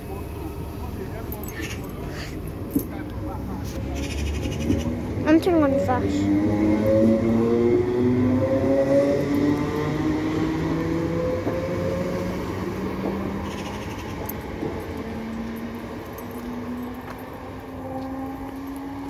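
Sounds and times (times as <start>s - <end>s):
train wheels rumbling: 4.6s - 19.0s.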